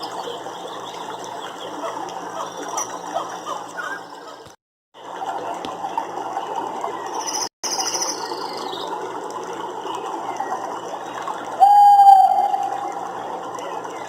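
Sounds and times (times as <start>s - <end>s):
loud steady pitched animal call: 11.6s - 13.0s.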